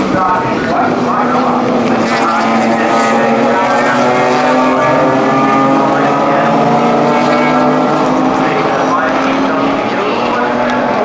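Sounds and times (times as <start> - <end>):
race car engine running hard: 0.0 - 11.0.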